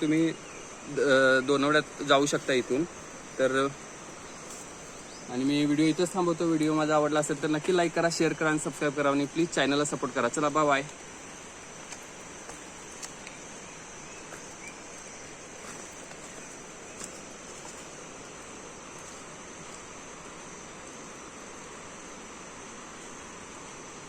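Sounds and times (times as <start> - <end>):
insects chirring: 0.0 - 24.0
outdoor background hiss: 0.0 - 24.0
faint clicks: 11.8 - 13.4.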